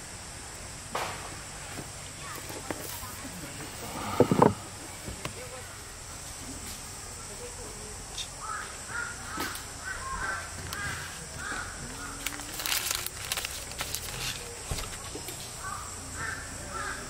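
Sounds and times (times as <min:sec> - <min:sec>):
steady high hiss: 0:00.0 - 0:17.0
birds giving harsh calls: 0:08.2 - 0:13.2, 0:15.6 - 0:17.0.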